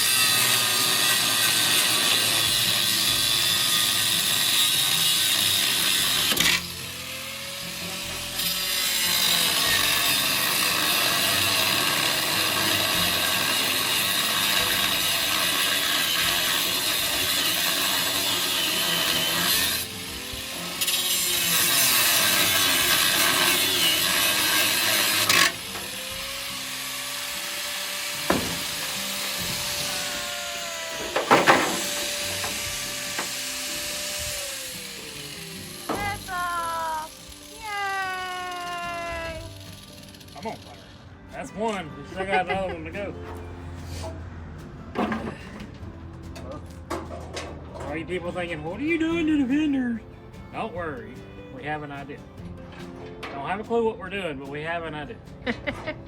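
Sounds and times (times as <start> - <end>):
power tool working metal: 0.0 - 41.0.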